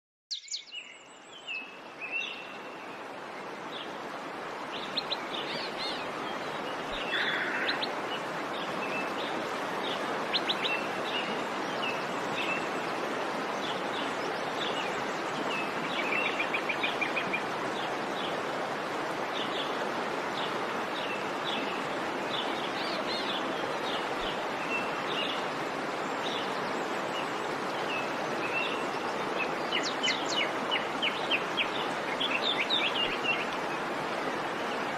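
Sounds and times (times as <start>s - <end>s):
songbirds chirping and trilling: 0.3s - 34.9s.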